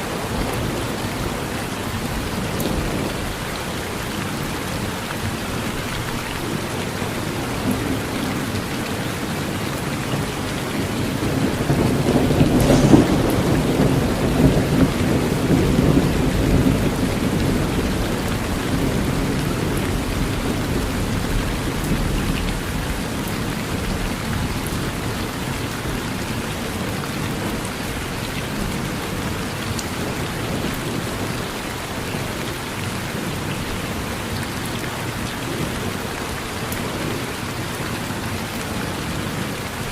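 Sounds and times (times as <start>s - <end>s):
steady rain falling: 0.0s - 39.9s
thunder cracking and rumbling: 6.5s - 32.4s.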